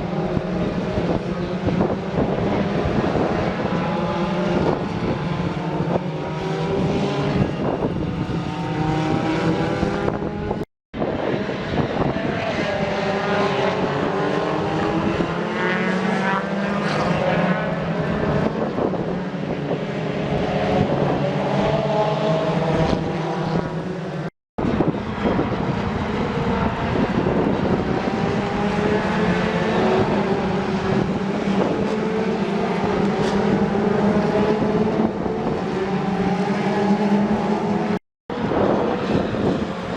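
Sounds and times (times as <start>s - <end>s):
racing cars passing: 0.0s - 39.9s.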